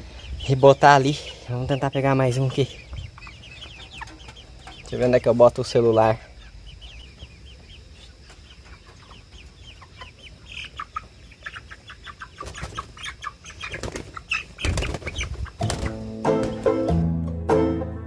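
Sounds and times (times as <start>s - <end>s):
chickens chirping and clucking: 0.0s - 17.0s
wing flapping: 13.6s - 16.7s.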